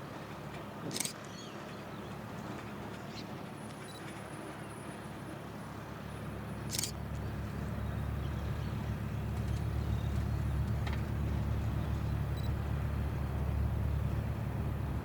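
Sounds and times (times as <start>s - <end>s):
low engine rumble: 5.8s - 15.0s.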